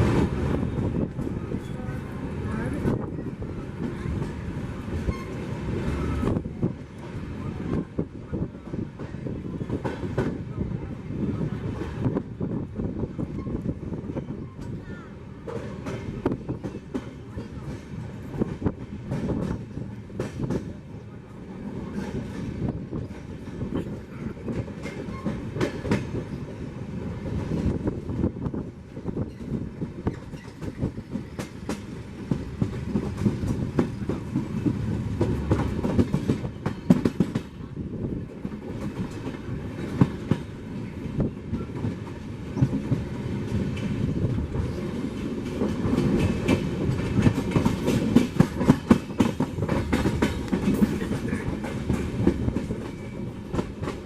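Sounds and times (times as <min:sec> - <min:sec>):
train wheels rumbling on rail: 0:00.0 - 0:54.0
wheels clicking over rail joints: 0:41.5 - 0:54.0.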